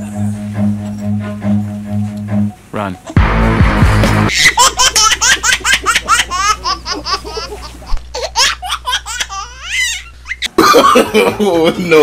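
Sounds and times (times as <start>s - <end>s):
high-pitched laughing: 4.3s - 11.4s.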